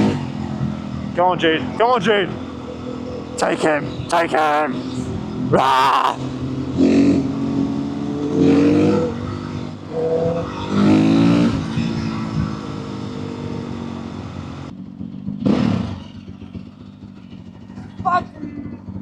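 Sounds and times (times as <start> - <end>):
motorcycle engine revving: 6.2 - 19.0.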